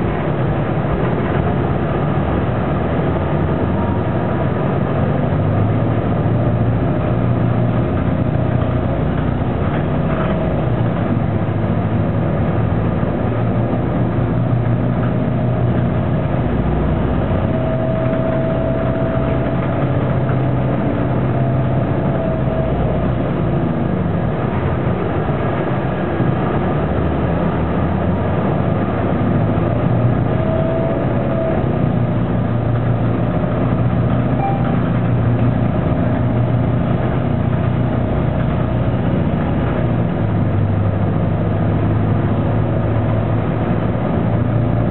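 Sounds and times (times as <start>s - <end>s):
bus engine droning: 0.0s - 44.9s
thin whine: 14.3s - 25.0s, 29.0s - 40.0s.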